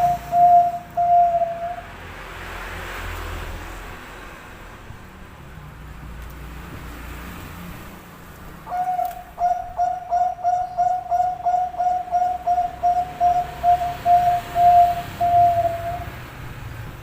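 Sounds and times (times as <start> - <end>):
dove cooing: 0.0 - 1.8, 8.7 - 16.1.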